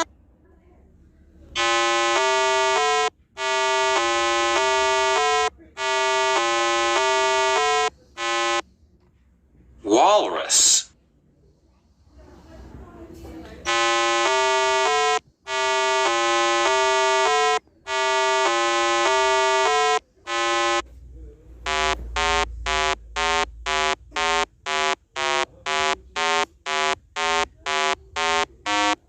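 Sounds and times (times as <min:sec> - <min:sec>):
harsh electronic buzzer tones: 0:01.6 - 0:08.6, 0:13.7 - 0:20.8, 0:21.6 - 0:29.0
short electronic beeps: 0:01.6 - 0:08.6, 0:13.7 - 0:20.8, 0:21.7 - 0:29.0.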